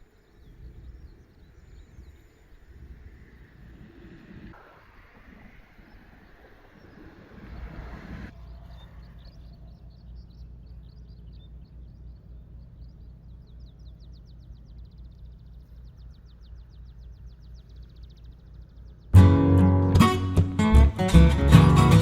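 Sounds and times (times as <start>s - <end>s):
steady low rumble: 0.0s - 21.9s
acoustic guitar music: 19.1s - 22.0s.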